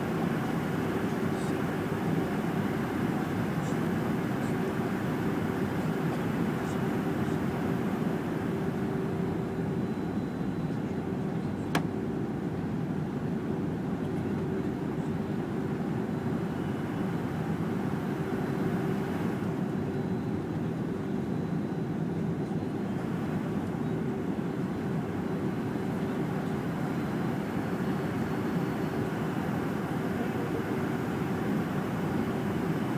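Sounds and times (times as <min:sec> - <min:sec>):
steady hum: 0:00.0 - 0:13.8, 0:22.8 - 0:32.9
jet engines in aircraft cabin: 0:00.0 - 0:32.9.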